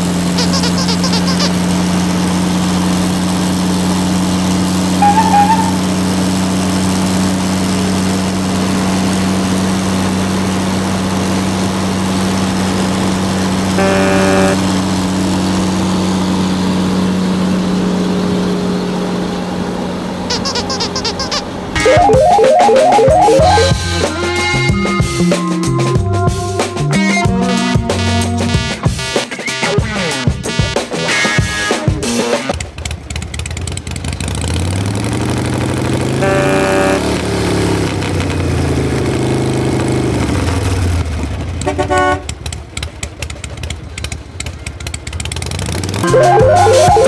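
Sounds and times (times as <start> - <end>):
brief tones: 0.4 - 1.5, 5.0 - 5.8, 20.3 - 24.0, 46.0 - 47.0.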